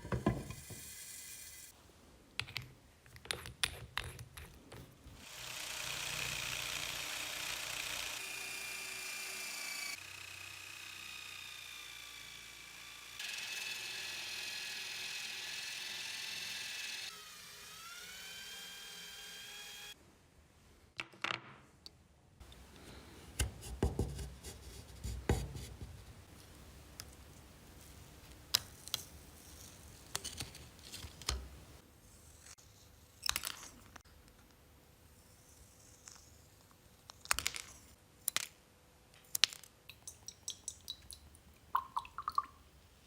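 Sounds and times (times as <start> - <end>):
power tool whining: 5.2 - 20.0.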